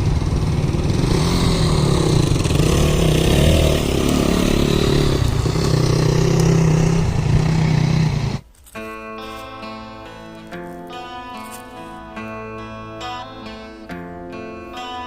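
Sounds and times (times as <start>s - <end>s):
motorcycle engines running: 0.0s - 8.4s.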